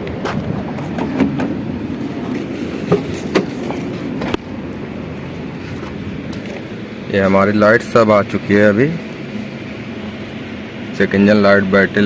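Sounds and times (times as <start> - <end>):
steady background noise: 0.0 - 12.0
sharp clicks and knocks: 2.3 - 4.5.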